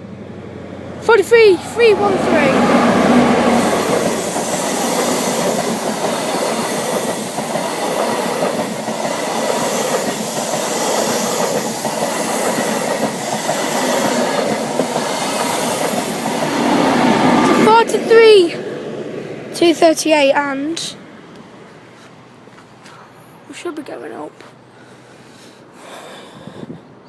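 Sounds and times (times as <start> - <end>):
high-speed train passing: 0.0 - 22.5
loud rail noise: 0.0 - 27.0.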